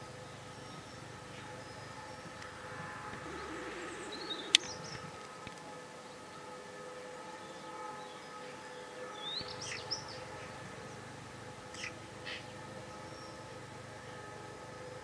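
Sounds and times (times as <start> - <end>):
faint steady hum: 0.0 - 15.0
faint bird calls: 0.8 - 5.7, 11.7 - 12.5.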